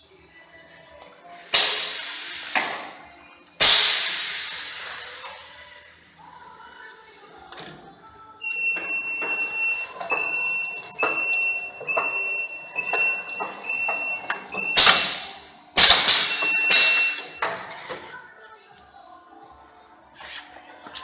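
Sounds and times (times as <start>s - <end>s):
machine high whine: 8.5s - 17.4s.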